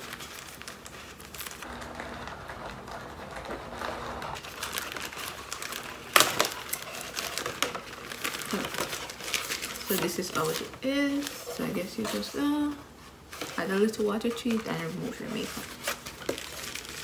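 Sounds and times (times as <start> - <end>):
wrapper tearing: 0.0 - 12.2, 15.4 - 17.0
packaging crinkling: 0.0 - 13.6, 14.4 - 17.0.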